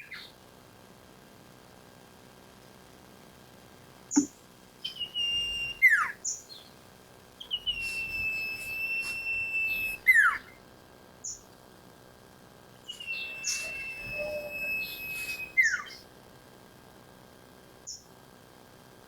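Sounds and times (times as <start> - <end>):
bird whistling song: 4.1 - 6.7, 7.4 - 10.5, 12.9 - 16.0
short high bird chips: 4.9 - 5.9, 7.5 - 10.1, 12.9 - 15.9.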